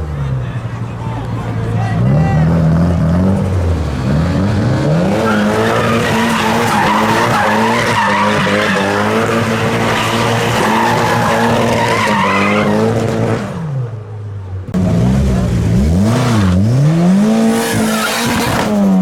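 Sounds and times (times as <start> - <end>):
tyres squealing: 1.2 - 12.7
car engine revving hard: 2.0 - 13.8, 14.7 - 19.0.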